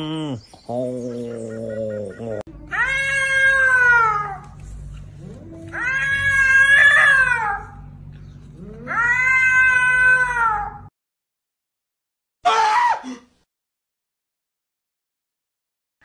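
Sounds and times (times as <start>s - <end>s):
cat meowing: 2.6s - 4.4s, 8.6s - 10.8s.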